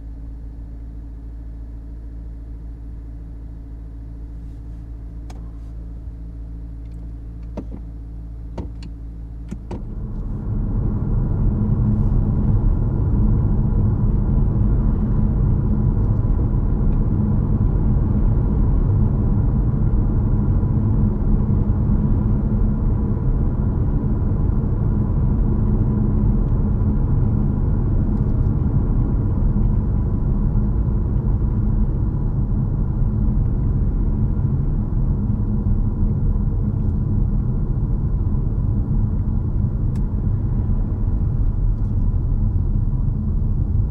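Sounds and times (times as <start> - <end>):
car cabin engine hum: 0.0 - 43.9.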